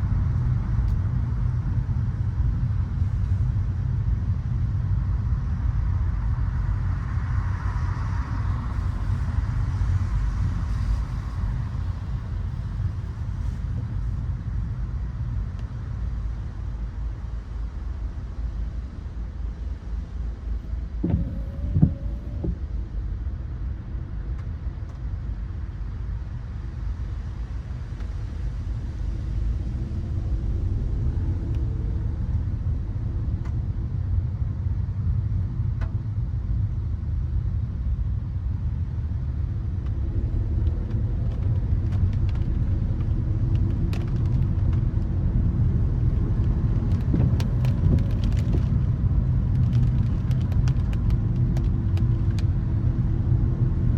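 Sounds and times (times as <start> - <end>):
car driving on wet road: 6.2 - 16.3, 19.6 - 25.4, 26.4 - 53.9.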